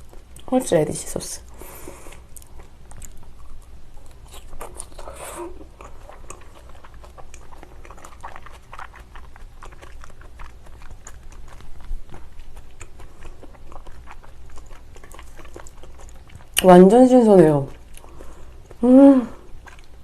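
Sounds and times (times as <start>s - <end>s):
wet chewing mouth smacks: 2.1s - 16.7s, 19.4s - 20.0s.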